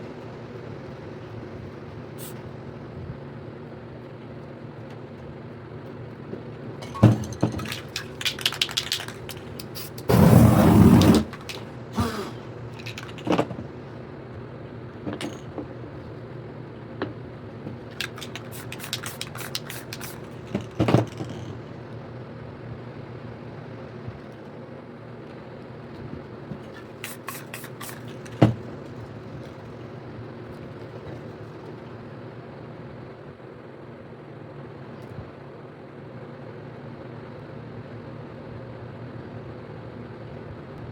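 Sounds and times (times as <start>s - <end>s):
steady background hum: 0.0s - 40.9s
spray paint hiss: 2.2s - 2.4s, 7.6s - 13.3s, 18.0s - 20.8s, 26.8s - 28.6s
spray can clicks and rattles: 6.8s - 13.4s, 17.9s - 21.5s, 26.8s - 28.6s.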